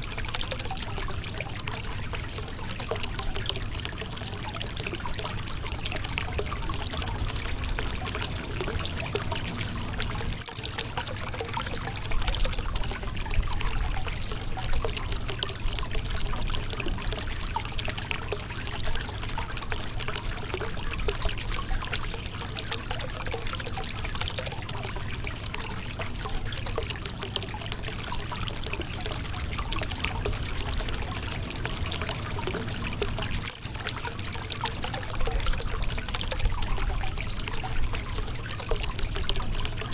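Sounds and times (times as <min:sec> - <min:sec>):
water trickling and splashing: 0:00.0 - 0:39.9
river water flowing over rocks: 0:29.0 - 0:35.0.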